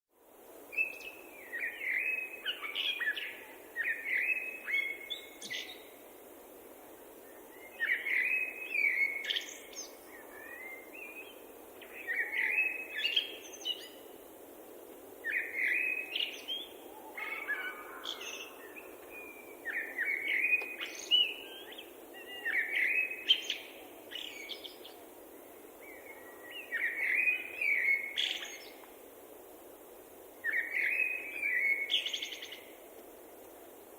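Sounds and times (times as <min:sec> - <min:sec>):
steady low hiss: 0:00.2 - 0:33.9
songbird chirping and warbling: 0:15.3 - 0:25.0, 0:30.4 - 0:32.7.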